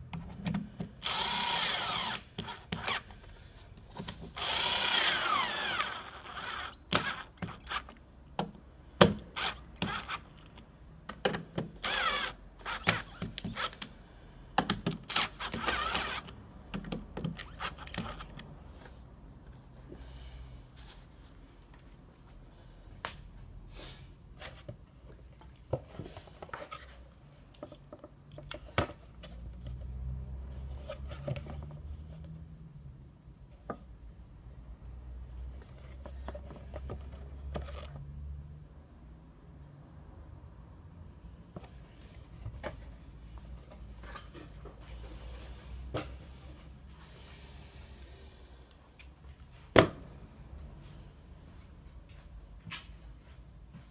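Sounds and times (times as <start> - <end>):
power tool whirring: 1.0 - 3.1, 4.4 - 8.0, 9.3 - 10.3, 11.8 - 13.9, 15.0 - 16.4.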